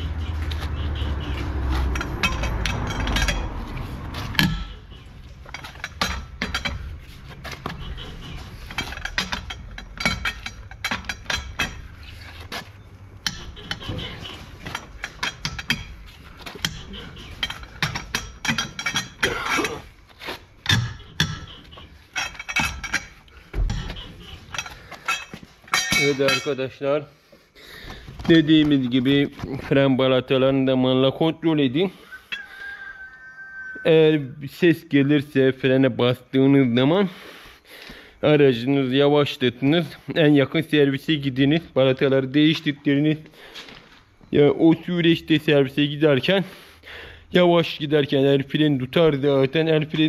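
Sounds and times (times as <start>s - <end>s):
hand tools knocking on metal: 0.1s - 12.1s, 13.1s - 19.9s, 20.6s - 26.6s.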